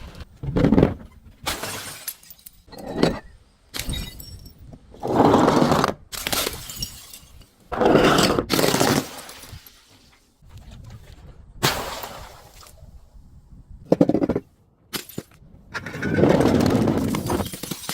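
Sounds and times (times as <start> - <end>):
glass bottles breaking: 1.4 - 2.7, 3.8 - 4.6, 6.2 - 7.5, 17.0 - 17.9.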